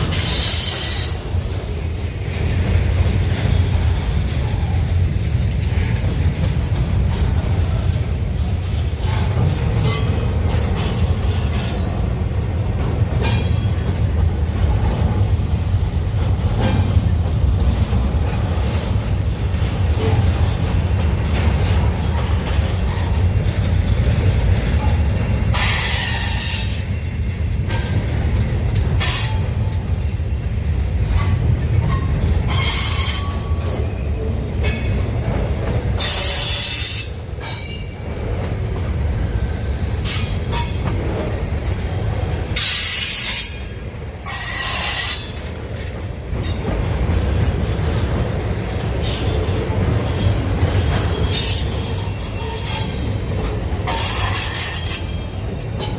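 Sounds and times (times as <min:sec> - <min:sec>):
freight train cars rumbling: 0:00.0 - 0:55.9
high-pitched metallic squeals: 0:00.1 - 0:01.5, 0:36.0 - 0:37.8, 0:51.2 - 0:53.1.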